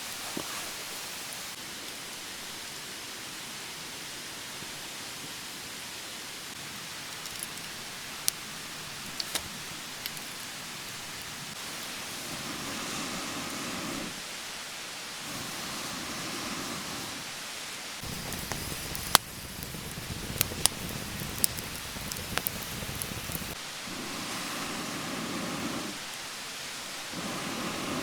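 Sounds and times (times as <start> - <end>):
campfire hissing: 0.0 - 3.4, 5.9 - 28.0
fire popping and crackling: 6.7 - 12.2, 18.0 - 23.6.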